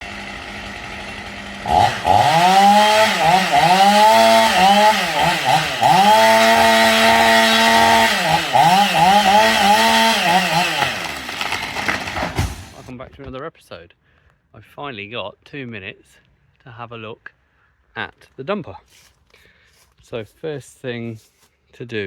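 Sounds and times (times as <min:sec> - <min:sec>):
small engine revving: 0:00.0 - 0:12.9.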